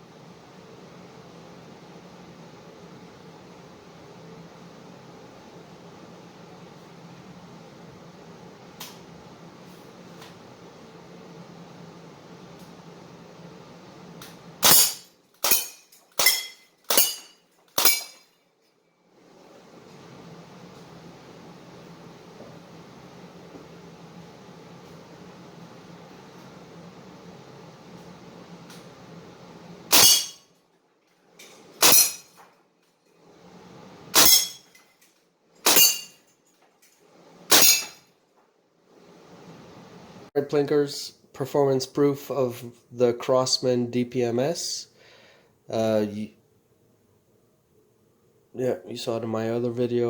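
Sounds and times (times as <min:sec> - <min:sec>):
faint steady hiss: 0:38.8 - 0:50.0.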